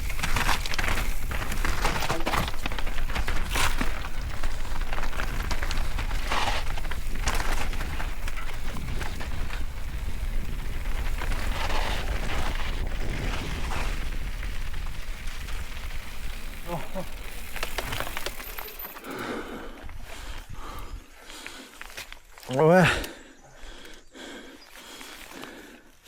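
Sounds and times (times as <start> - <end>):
bike rattling over bumps: 0.0 - 20.8
tyres on wet dirt and stones: 0.0 - 26.0
wind buffeting microphone: 2.5 - 17.5.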